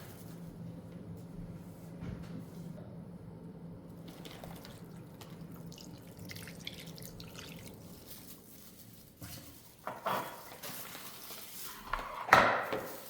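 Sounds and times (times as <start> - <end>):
faint steady hum: 0.0 - 9.6
water dripping in sink: 4.1 - 7.8.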